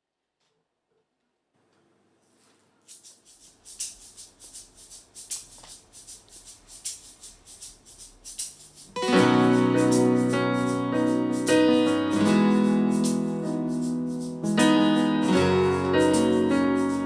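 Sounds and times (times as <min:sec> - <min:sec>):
shaker rhythm: 0:02.3 - 0:17.0
keyboard and guitar chord: 0:09.0 - 0:17.0.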